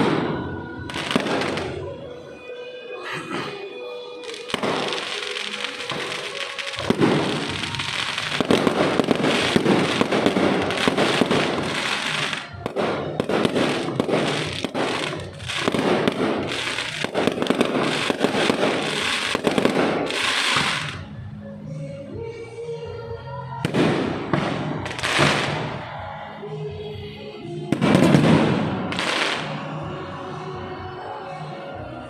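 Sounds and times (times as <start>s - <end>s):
fireworks crackling and banging: 0.0s - 2.0s, 4.2s - 21.1s, 23.6s - 26.0s, 27.7s - 29.8s.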